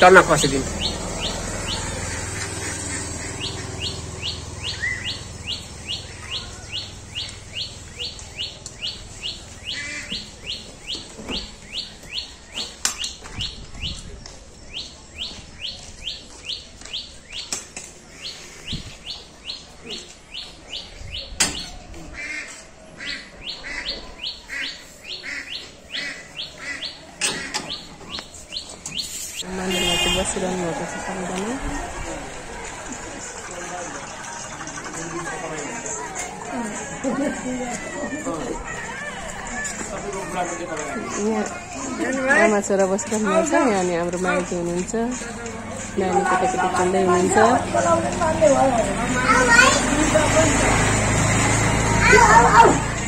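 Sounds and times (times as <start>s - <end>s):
bird chirping: 0.0s - 21.8s.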